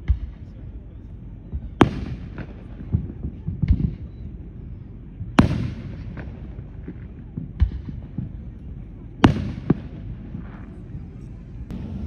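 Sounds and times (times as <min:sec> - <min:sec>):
low rumble of bursts: 0:00.0 - 0:12.0
fireworks bursting: 0:01.6 - 0:04.2, 0:09.2 - 0:10.8.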